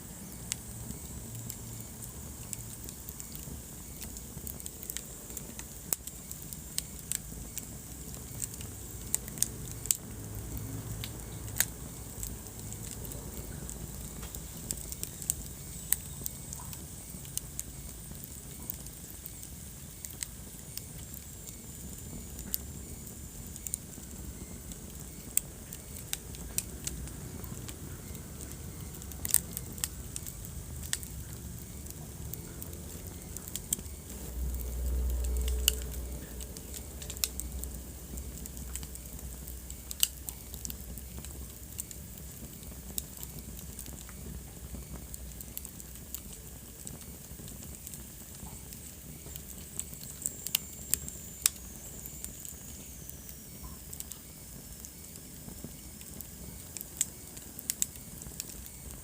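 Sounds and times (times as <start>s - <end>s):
wood fire crackling: 0.0s - 59.0s
low rumble: 29.8s - 41.8s.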